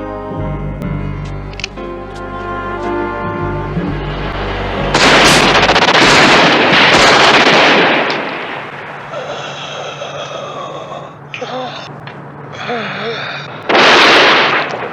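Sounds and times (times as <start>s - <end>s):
film score music: 0.0s - 6.8s
rapid gunfire: 5.0s - 8.7s, 13.7s - 14.9s.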